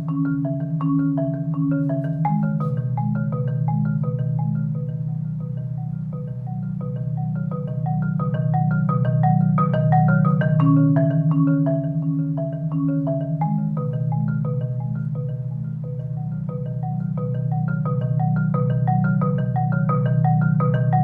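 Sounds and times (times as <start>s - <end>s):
marimba playing: 0.0s - 21.0s.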